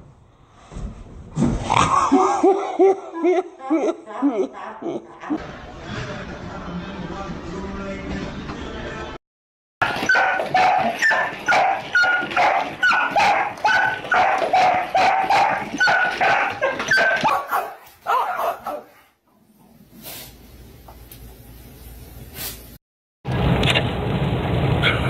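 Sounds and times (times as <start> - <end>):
dog barking: 9.8 - 19.1.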